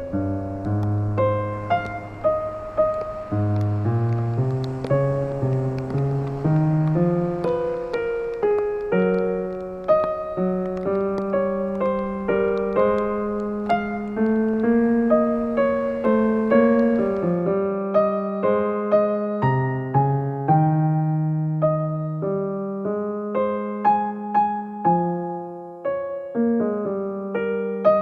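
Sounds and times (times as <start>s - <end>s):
slow solo piano music: 0.0s - 28.0s.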